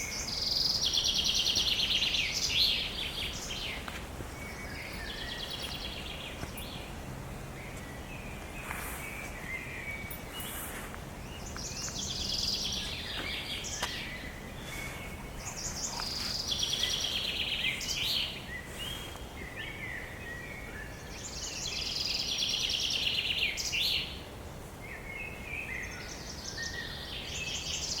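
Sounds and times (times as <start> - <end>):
bird trilled song: 0.0 - 6.9, 7.6 - 24.2
faint bird calls: 7.6 - 21.5.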